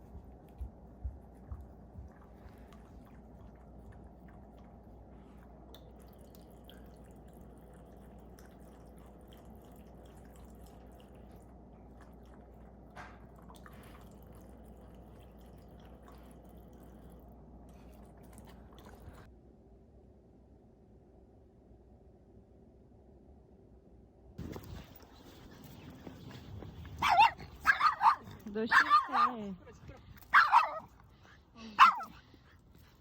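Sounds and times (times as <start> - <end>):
low steady hum: 0.0 - 33.0
water dripping: 5.6 - 17.3.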